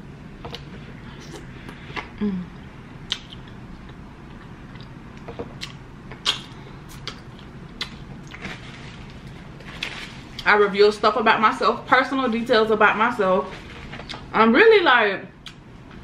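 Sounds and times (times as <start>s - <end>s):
closed-mouth hum: 0.0s - 8.4s
person chewing and lip smacking: 0.4s - 8.4s, 15.4s - 15.6s.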